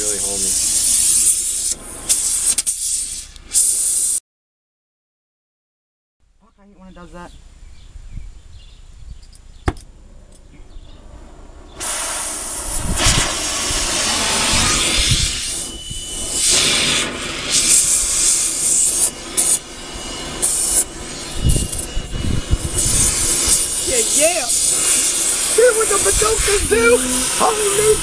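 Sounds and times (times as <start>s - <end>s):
sharp click: 9.2s - 10.5s
power tool cutting metal pipe: 11.8s - 28.0s.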